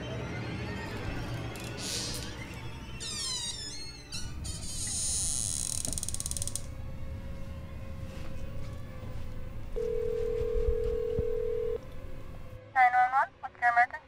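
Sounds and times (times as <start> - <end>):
low rumbling drone: 4.2 - 12.6
high buzzing rattle: 4.5 - 6.8
telephone ringback tone: 9.8 - 11.8.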